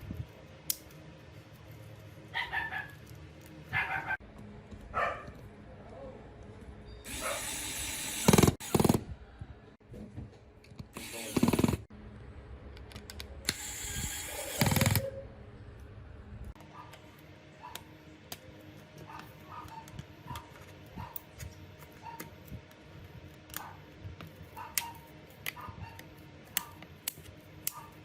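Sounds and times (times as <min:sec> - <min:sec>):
small power tool running: 0:07.1 - 0:09.0, 0:11.0 - 0:11.8, 0:13.5 - 0:15.0.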